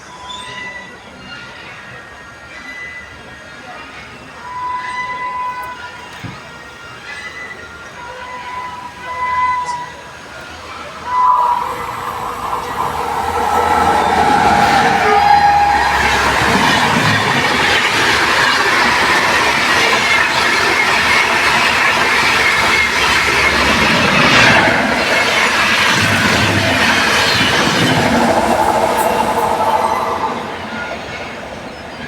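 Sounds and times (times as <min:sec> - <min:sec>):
train wheels clattering on rails: 0:10.8 - 0:32.0.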